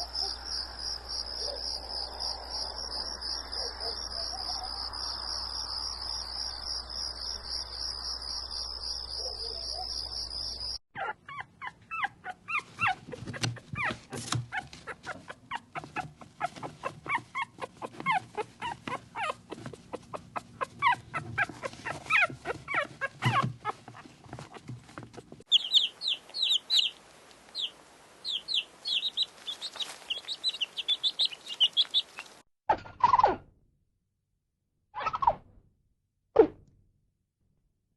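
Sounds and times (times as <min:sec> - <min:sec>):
crickets trilling: 0:00.0 - 0:10.8, 0:25.5 - 0:32.4
high bird chirps: 0:25.5 - 0:32.4
short animal calls and clicks: 0:25.5 - 0:32.4.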